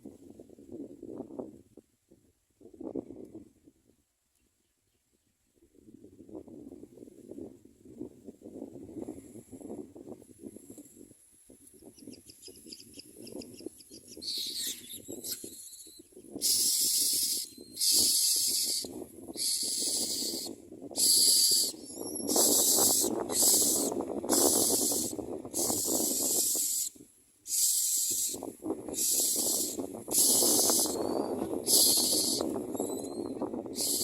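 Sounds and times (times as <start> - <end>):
nestlings begging with hissing rasps: 14.2 - 26.9, 27.5 - 34.0.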